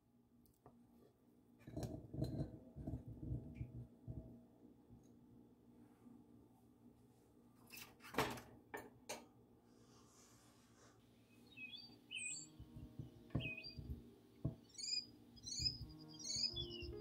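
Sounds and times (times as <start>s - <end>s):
small bird chirping: 11.3s - 17.0s
soft low knocks: 12.5s - 14.8s.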